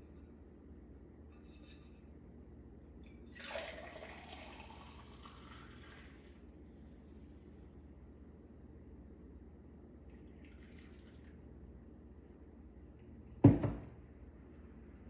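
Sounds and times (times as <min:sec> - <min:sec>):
low steady hum: 0:00.0 - 0:15.0
liquid poured into a cup: 0:03.0 - 0:06.5, 0:10.1 - 0:11.4.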